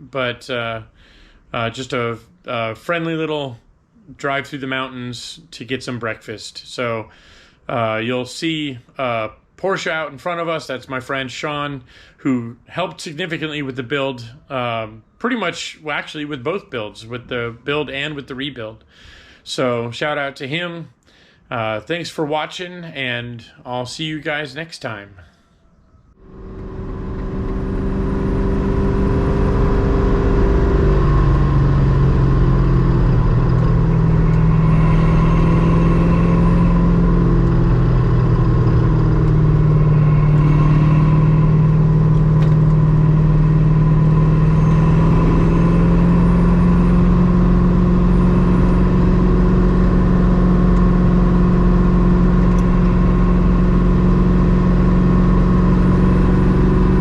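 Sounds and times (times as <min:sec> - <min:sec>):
car engine running: 0:26.2 - 0:57.0.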